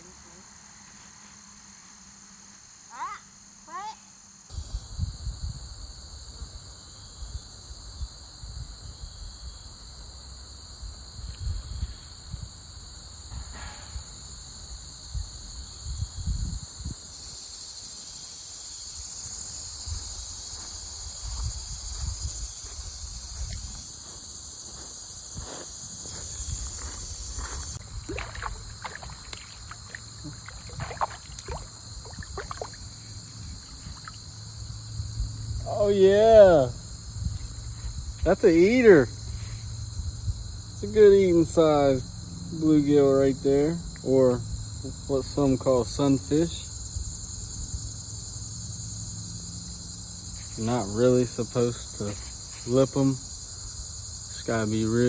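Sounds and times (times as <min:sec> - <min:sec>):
high-pitched insect drone: 0:00.0 - 0:55.0.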